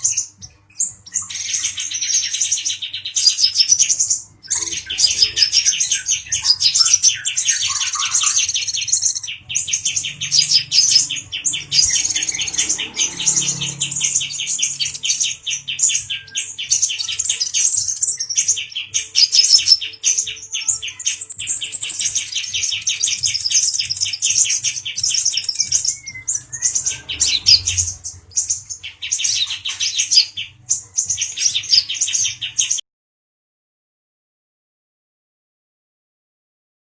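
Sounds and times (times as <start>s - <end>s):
sunbird singing high trills: 0.0s - 32.8s.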